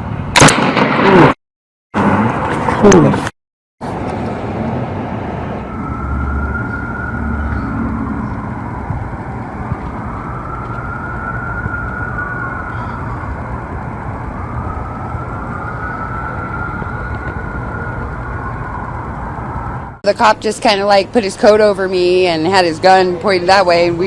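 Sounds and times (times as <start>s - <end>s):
steady low rumble: 3.9s - 21.4s
emergency vehicle siren wailing: 4.5s - 24.0s.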